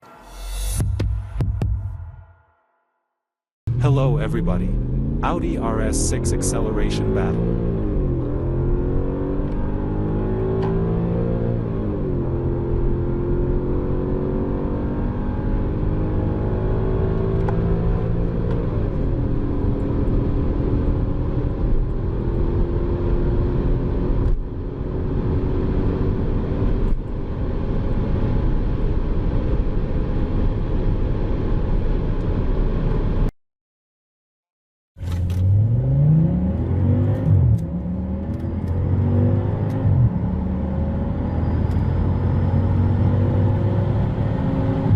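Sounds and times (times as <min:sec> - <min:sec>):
v eight engine accelerating: 0:03.7 - 0:33.0, 0:35.0 - 0:44.9
v ten engine revving hard: 0:35.4 - 0:41.4.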